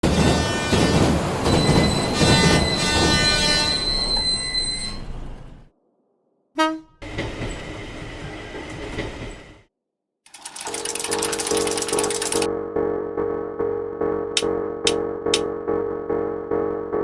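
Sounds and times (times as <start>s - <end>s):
train running noise: 0.0s - 5.6s, 6.6s - 9.7s
passing train ringing sound: 0.1s - 5.3s
short horn toot: 6.6s - 7.0s.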